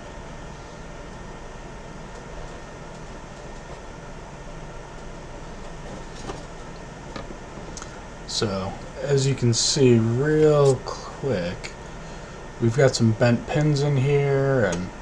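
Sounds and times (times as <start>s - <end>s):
low room hum and hiss: 0.0s - 15.0s.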